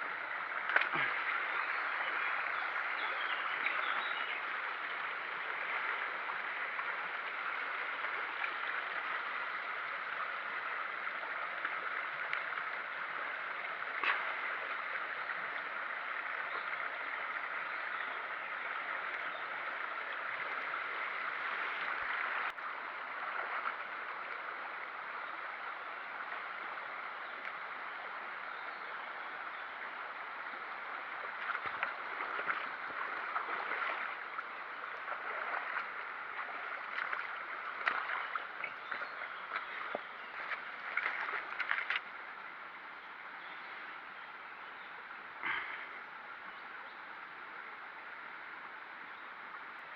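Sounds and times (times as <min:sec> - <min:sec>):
flowing water rushing: 0:00.0 - 0:49.9.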